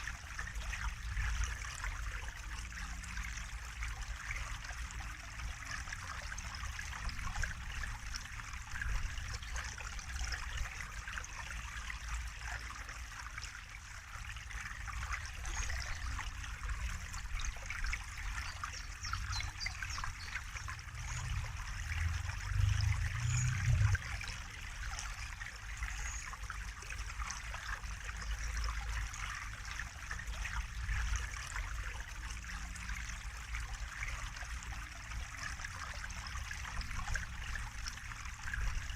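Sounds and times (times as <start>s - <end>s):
water trickling and babbling: 0.0s - 38.9s
low rumble: 20.6s - 24.5s.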